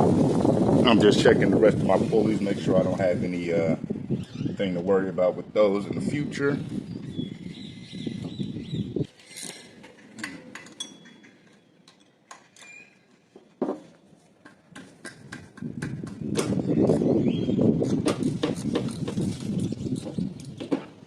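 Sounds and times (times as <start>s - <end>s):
bird chirps: 6.9s - 9.1s, 16.6s - 17.7s.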